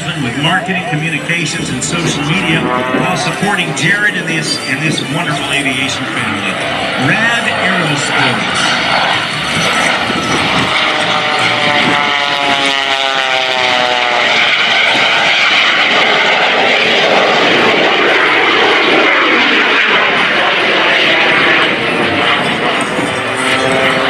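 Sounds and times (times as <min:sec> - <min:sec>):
jet engine rushing: 0:00.0 - 0:24.0
propeller plane engine drone: 0:00.0 - 0:24.0.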